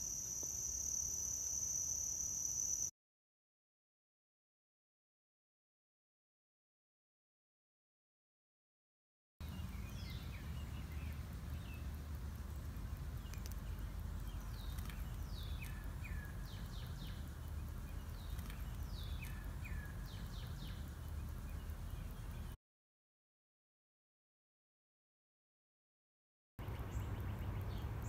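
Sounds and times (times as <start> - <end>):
bird chirping: 9.4 - 22.6, 26.6 - 28.0
steady low rumble: 9.4 - 22.6.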